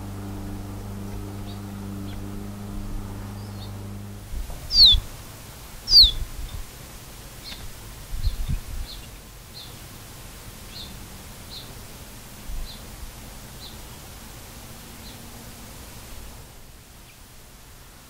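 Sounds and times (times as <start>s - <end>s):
low rumble: 0.0s - 5.3s
faint high chirps: 4.7s - 5.0s, 5.9s - 6.2s
bird whistling descending notes: 4.7s - 5.1s, 5.9s - 6.2s.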